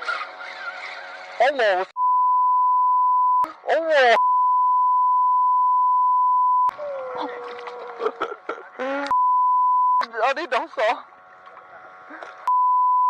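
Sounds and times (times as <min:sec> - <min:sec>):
censor bleep tone: 0:02.0 - 0:03.5, 0:04.2 - 0:06.7, 0:09.1 - 0:10.0, 0:12.5 - 0:13.0
voices: 0:06.7 - 0:09.2.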